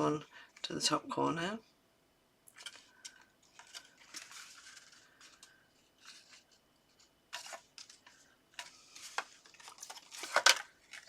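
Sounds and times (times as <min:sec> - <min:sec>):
card and paper rustling: 0:02.5 - 0:11.0.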